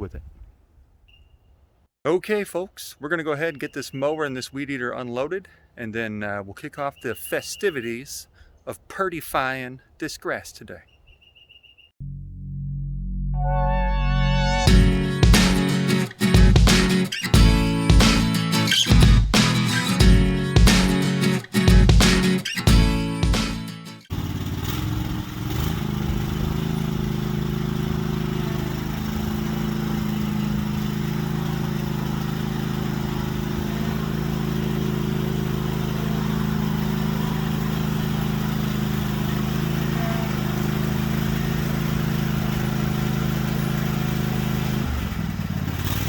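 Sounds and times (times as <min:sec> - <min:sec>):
engine running steadily: 0:24.1 - 0:46.0.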